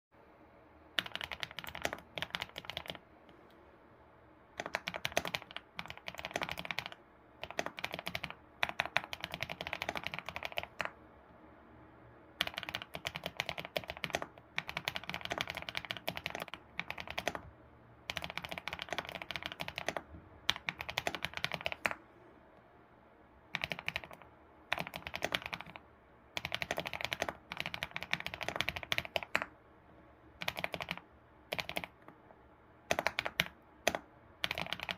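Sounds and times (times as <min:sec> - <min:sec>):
clacky keyboard typing: 0:01.0 - 0:03.0, 0:04.5 - 0:11.0, 0:12.4 - 0:17.5, 0:18.1 - 0:22.0, 0:23.5 - 0:29.6, 0:30.4 - 0:32.1, 0:32.8 - 0:34.9.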